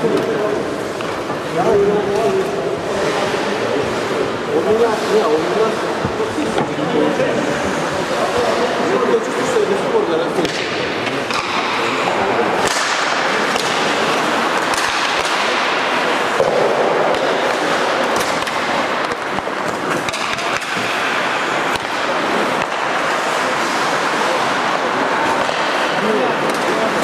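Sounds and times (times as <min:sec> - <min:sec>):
hockey sticks and puck clacking: 0:00.0 - 0:27.0
skate blades scraping ice: 0:11.3 - 0:27.0.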